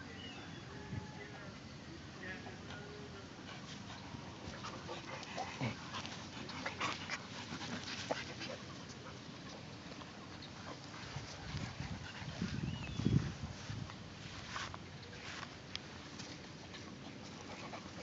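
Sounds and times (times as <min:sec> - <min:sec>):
dog panting: 0:03.3 - 0:12.9, 0:16.8 - 0:18.0.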